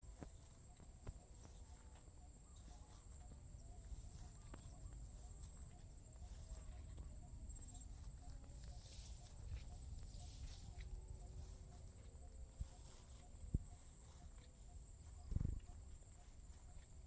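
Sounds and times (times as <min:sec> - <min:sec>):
insects trilling: 0:00.2 - 0:17.0.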